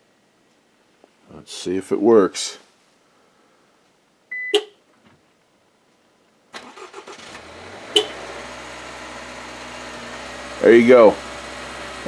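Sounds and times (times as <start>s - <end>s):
short beep: 4.3s - 4.8s
car engine starting and idling: 6.6s - 12.0s.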